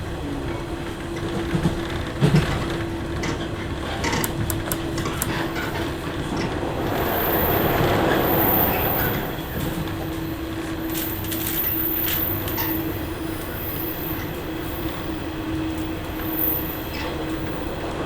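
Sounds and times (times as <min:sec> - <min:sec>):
wheels clicking over rail joints: 0:01.8 - 0:08.0.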